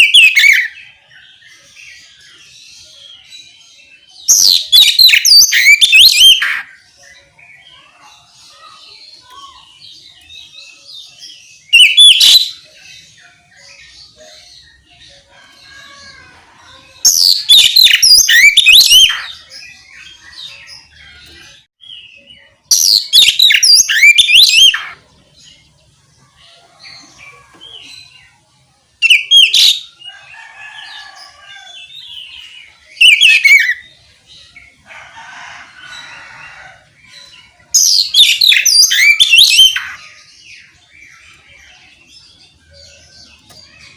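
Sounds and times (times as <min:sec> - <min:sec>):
bird singing whistles and trills: 0:04.3 - 0:06.6, 0:11.6 - 0:14.4, 0:17.0 - 0:20.2, 0:22.1 - 0:25.0, 0:32.3 - 0:34.0, 0:37.7 - 0:40.0.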